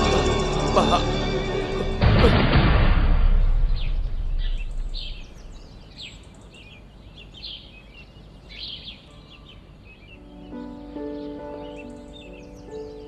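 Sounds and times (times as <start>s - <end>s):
birds chirping: 0.0s - 2.4s, 3.3s - 13.0s
loud low rumble: 0.0s - 5.9s.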